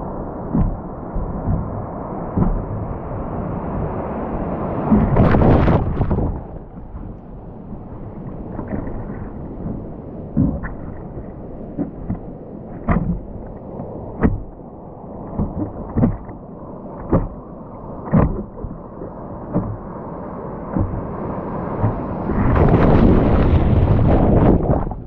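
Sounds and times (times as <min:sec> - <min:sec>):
wind rumbling on microphone: 0:00.0 - 0:25.0
dull thump: 0:00.5 - 0:01.8, 0:02.4 - 0:03.0, 0:12.8 - 0:13.4, 0:15.3 - 0:16.4, 0:18.1 - 0:18.8, 0:19.5 - 0:19.9, 0:20.7 - 0:21.1.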